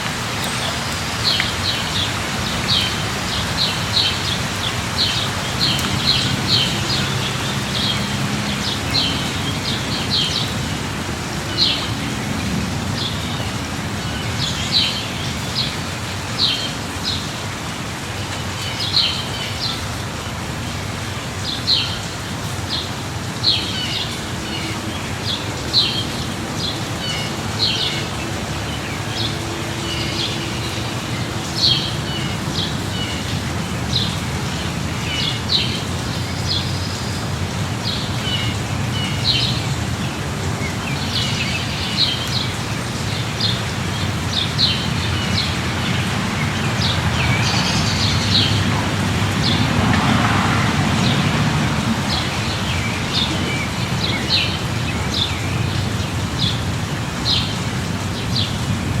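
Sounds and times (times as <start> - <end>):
light rain: 0.0 - 59.0
birds chirping: 18.2 - 58.8.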